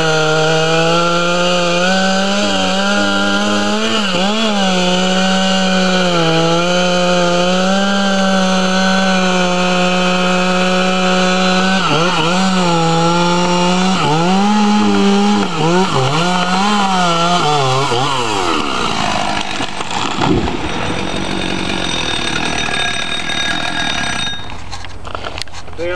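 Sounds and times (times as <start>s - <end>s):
chainsaw cutting: 0.0s - 25.6s
heavy thump: 19.5s - 21.4s.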